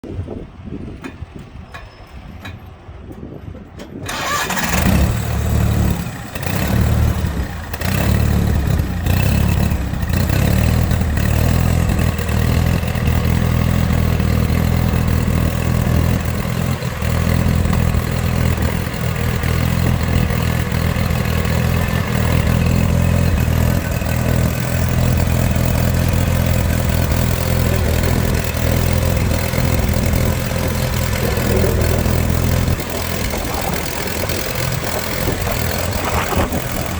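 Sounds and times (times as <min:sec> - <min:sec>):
lawn tractor engine starting: 0:03.9 - 0:36.9.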